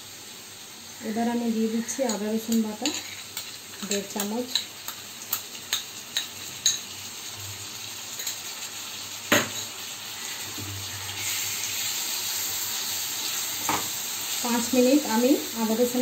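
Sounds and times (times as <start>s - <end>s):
food sizzling in a wok: 0.0s - 16.0s
spatula stirring: 2.1s - 4.7s.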